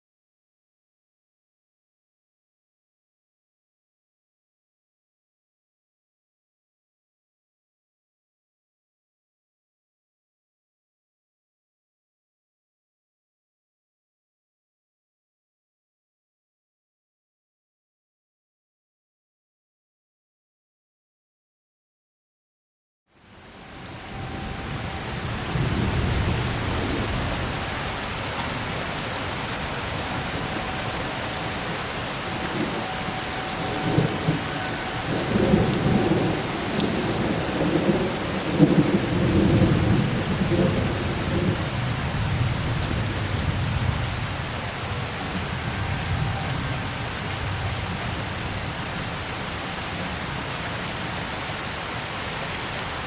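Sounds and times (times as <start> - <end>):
steady rain falling: 23.1 - 53.0
thunder rumbling: 23.7 - 50.4.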